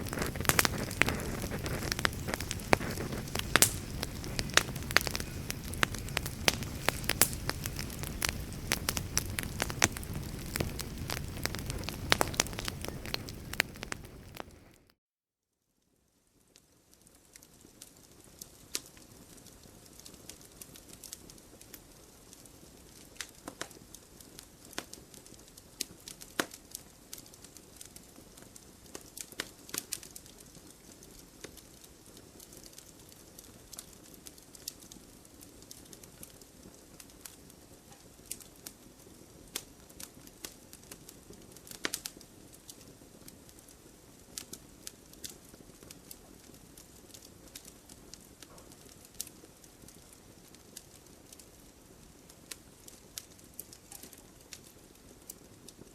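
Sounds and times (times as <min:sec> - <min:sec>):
wood fire crackling: 0:00.0 - 0:15.0, 0:17.3 - 0:55.9.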